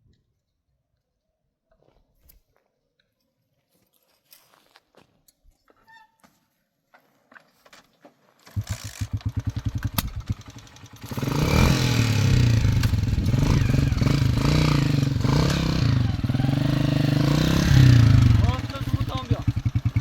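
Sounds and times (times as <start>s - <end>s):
motorcycle engine starting and revving: 8.4s - 20.0s.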